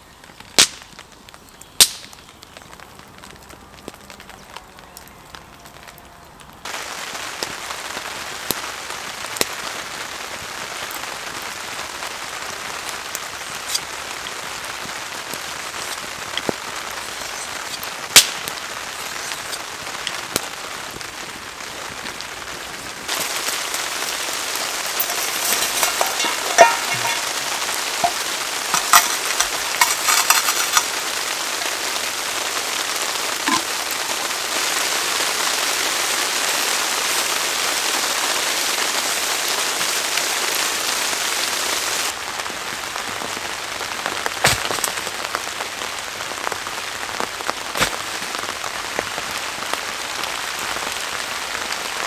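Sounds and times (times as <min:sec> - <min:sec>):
steady rain falling: 0:00.0 - 0:52.0
sharp raindrop clicks: 0:12.5 - 0:22.4.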